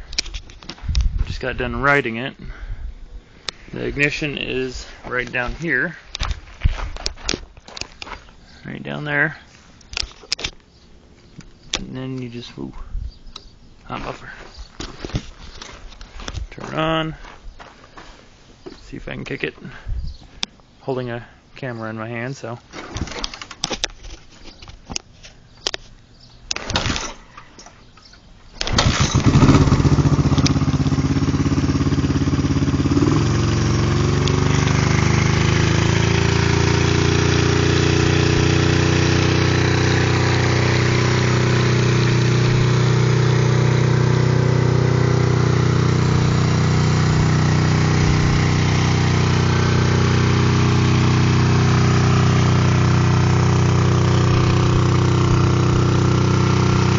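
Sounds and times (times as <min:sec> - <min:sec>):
motorcycle engine idling: 0:28.8 - 0:56.9.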